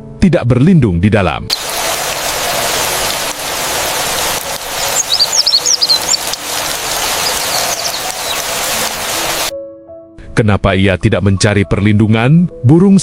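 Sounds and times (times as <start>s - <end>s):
rush of storm noise: 1.5s - 9.5s
small bird chirping: 1.6s - 9.5s.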